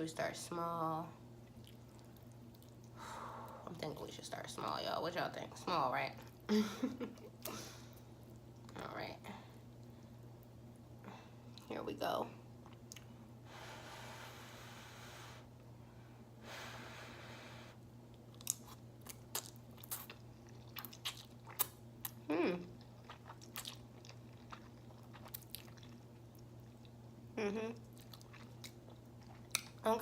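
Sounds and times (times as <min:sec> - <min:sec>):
wet chewing with lip-smacking: 0:01.4 - 0:03.0, 0:18.2 - 0:27.0, 0:27.8 - 0:29.8
person humming: 0:22.3 - 0:22.6, 0:27.4 - 0:27.8.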